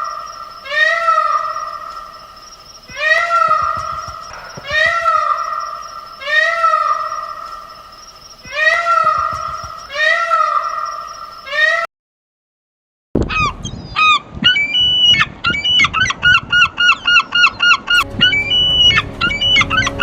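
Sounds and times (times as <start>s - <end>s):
bird wailing call: 0.0s - 7.8s, 8.4s - 11.9s, 13.3s - 20.0s
short repeated bird calls: 0.0s - 11.9s.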